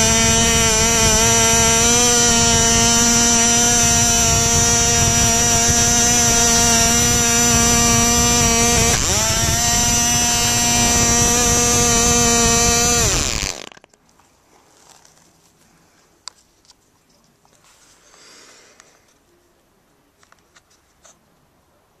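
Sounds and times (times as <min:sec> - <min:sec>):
model engine running high: 0:00.0 - 0:13.8.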